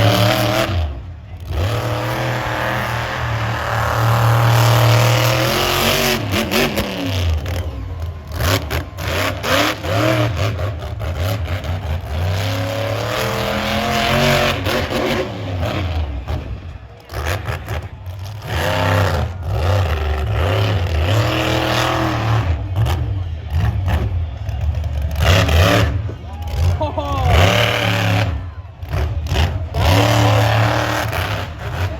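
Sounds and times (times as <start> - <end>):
truck engine revving: 0.0 - 31.9.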